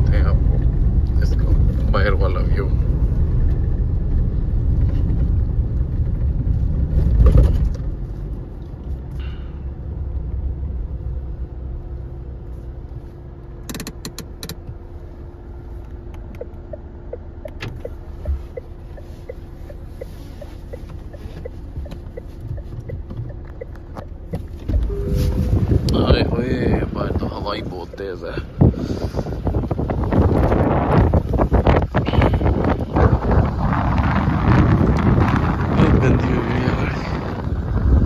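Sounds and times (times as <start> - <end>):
truck cabin low rumble: 0.0 - 38.0
regular ticking: 16.1 - 25.0, 25.9 - 28.4.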